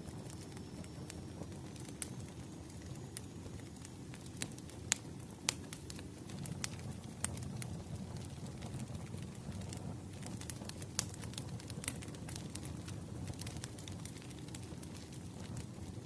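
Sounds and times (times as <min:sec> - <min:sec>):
crackles and pops of fire: 0:00.0 - 0:16.0
firewood burning: 0:00.0 - 0:16.0.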